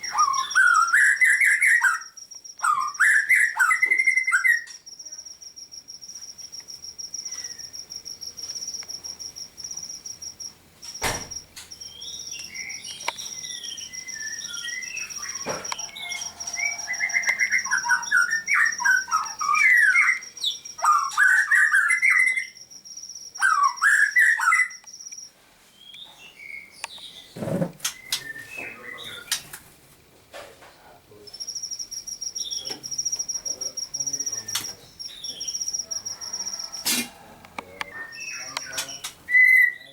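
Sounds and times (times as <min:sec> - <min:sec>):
whistled bird phrases: 0:00.0 - 0:04.8, 0:11.8 - 0:22.6, 0:23.4 - 0:24.8, 0:25.9 - 0:29.5, 0:32.3 - 0:39.9
songbirds singing and chirping: 0:00.0 - 0:29.8, 0:30.7 - 0:39.9.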